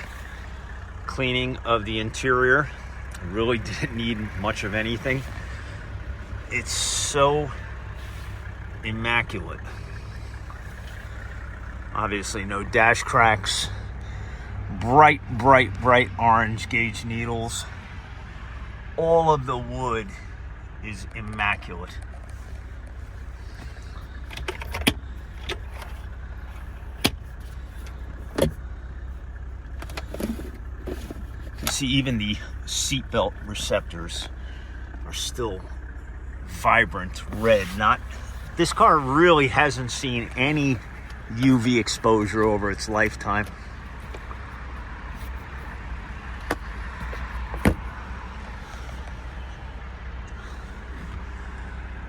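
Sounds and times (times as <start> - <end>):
steady low rumble: 0.0 - 52.0
clicks and knocks in car cabin: 23.6 - 28.6, 29.8 - 31.8, 43.4 - 48.0.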